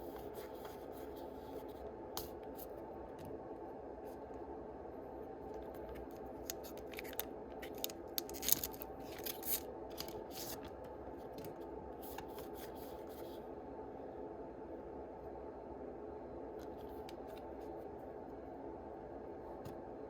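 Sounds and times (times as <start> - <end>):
steady low hum: 0.0 - 20.0
foil wrapper crinkling: 6.4 - 10.6.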